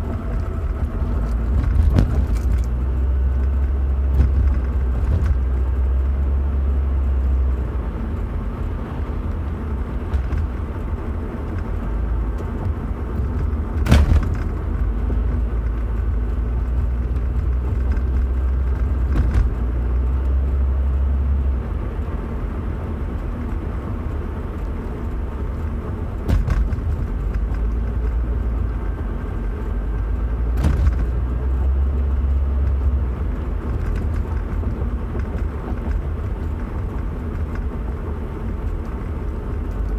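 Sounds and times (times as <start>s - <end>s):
car engine rumbling: 0.0s - 39.9s
sharp knocks: 13.4s - 14.8s.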